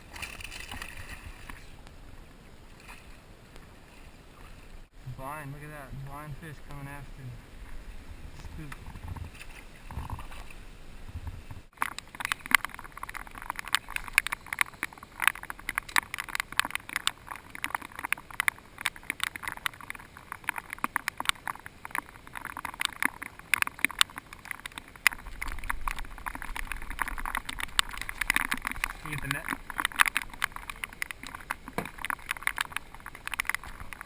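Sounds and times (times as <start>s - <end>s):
rain ticking on hard surface: 11.5s - 34.0s.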